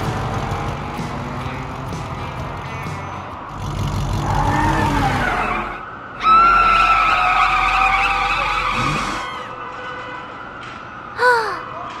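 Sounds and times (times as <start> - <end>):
cartoon car accelerating: 3.5 - 9.5
loud tyre screech: 3.5 - 9.7.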